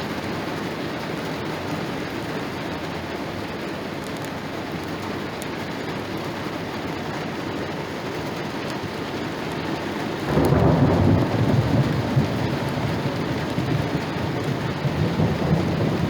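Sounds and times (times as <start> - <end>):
steady rain hiss: 0.0 - 16.0
thunder rumbling: 10.2 - 16.0.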